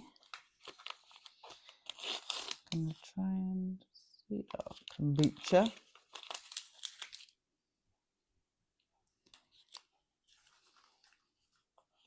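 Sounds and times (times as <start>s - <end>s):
packaging rustling: 0.0s - 3.1s, 4.5s - 7.4s, 9.2s - 12.0s
plastic wrapper crinkling: 0.0s - 3.1s, 4.5s - 7.4s, 9.2s - 12.0s.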